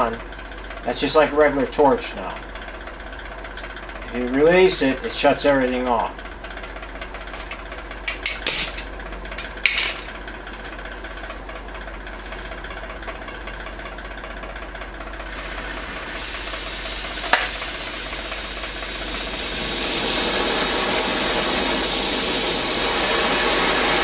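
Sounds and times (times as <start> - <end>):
welding torch hissing: 15.1 - 24.0.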